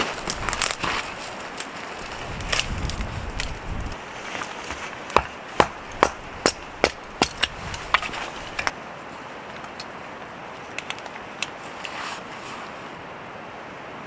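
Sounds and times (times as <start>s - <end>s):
sharp knocks: 4.7s - 8.7s.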